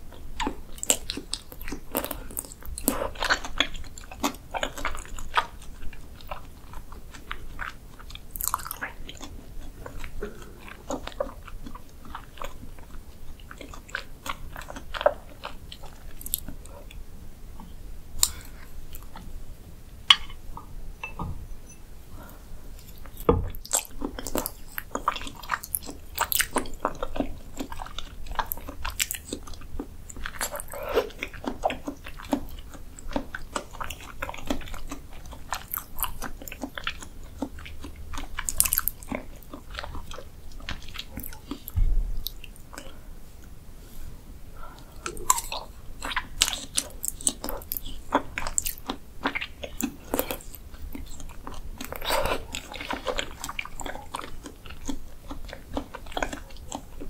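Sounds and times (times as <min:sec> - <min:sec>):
wet chewing and mouth smacks: 0:00.1 - 0:17.0, 0:17.6 - 0:19.3, 0:22.8 - 0:43.6, 0:44.8 - 0:57.0
low thump: 0:21.0 - 0:21.6, 0:41.8 - 0:42.2.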